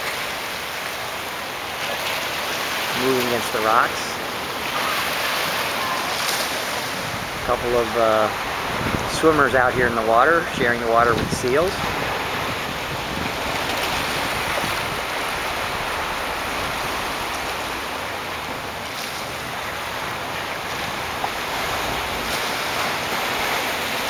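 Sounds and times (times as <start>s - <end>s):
water washing against rocks: 0.0s - 24.0s
wind on microphone: 6.7s - 23.8s.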